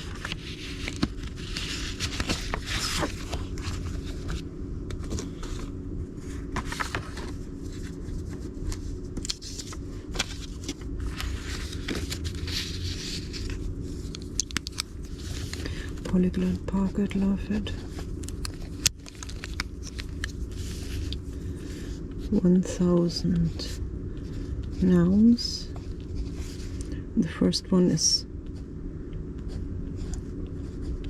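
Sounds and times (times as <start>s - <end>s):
steady low hum: 0.0s - 31.0s
card handling clicks and taps: 14.0s - 14.9s.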